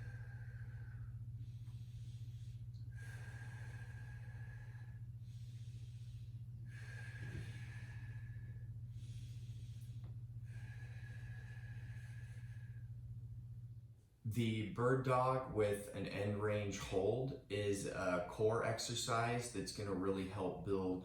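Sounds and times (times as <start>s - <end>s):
person breathing deeply: 0.0s - 13.2s
steady low hum: 0.0s - 21.0s.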